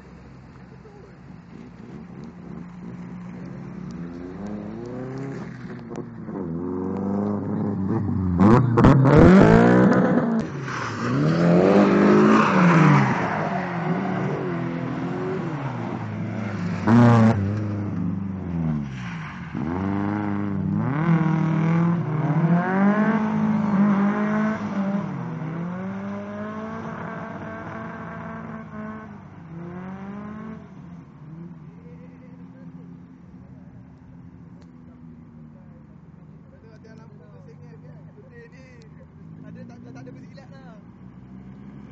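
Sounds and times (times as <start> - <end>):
car engine revving: 0.0 - 31.8.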